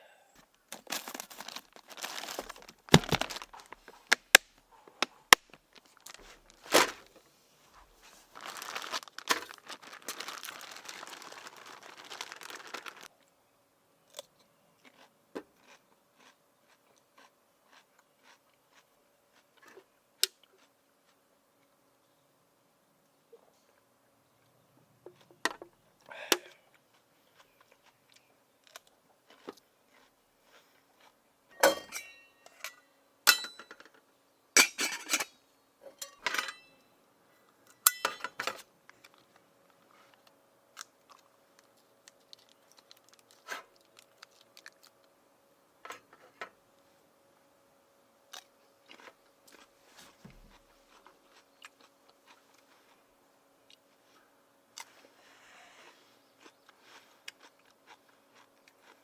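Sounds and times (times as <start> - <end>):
faint steady hum: 0.0 - 59.0
small objects clicking and clattering: 0.7 - 4.4, 8.4 - 13.1.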